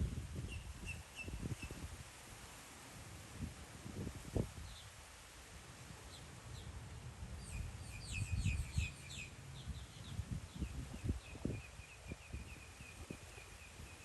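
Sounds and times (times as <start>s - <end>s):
low rumble of wind: 0.0s - 14.0s
small bird chirping: 7.4s - 14.0s.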